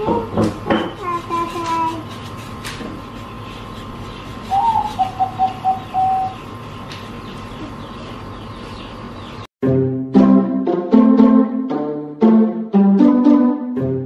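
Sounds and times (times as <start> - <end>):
bird calling: 1.3 - 9.5.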